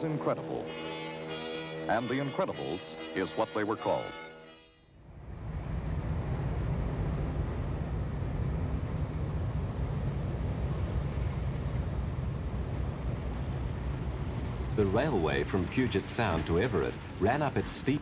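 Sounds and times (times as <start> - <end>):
diesel freight train rumbling: 0.0 - 4.3, 9.0 - 18.0.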